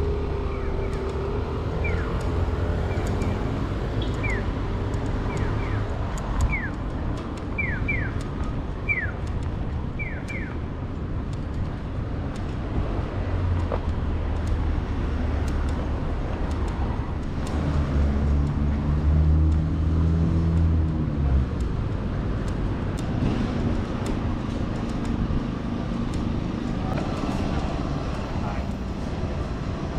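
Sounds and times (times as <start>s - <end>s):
vehicle engine passing by: 17.5s - 21.6s.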